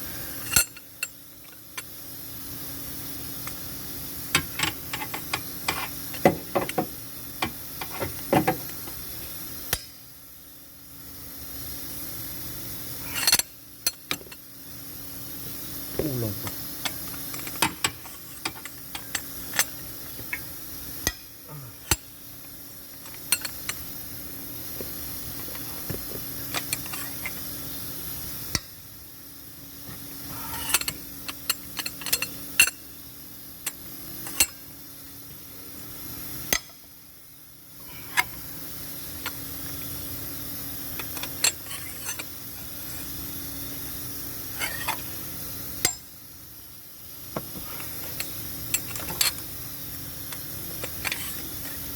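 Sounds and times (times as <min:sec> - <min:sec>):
low background hum: 0:00.0 - 0:51.9
metal tools clinking: 0:00.4 - 0:01.2, 0:16.8 - 0:20.4, 0:23.0 - 0:23.8, 0:26.5 - 0:27.4, 0:30.4 - 0:32.8, 0:41.0 - 0:42.3, 0:47.8 - 0:49.5, 0:50.8 - 0:51.8.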